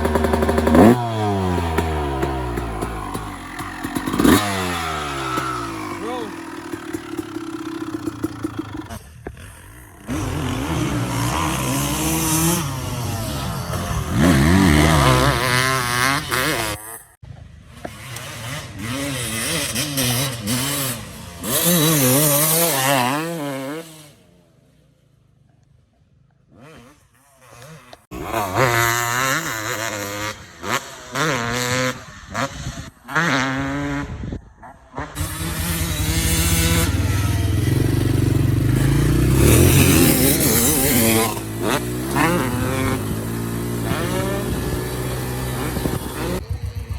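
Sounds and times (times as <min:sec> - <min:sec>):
dirt bike engine revving: 0:00.0 - 0:24.4, 0:26.4 - 0:46.9.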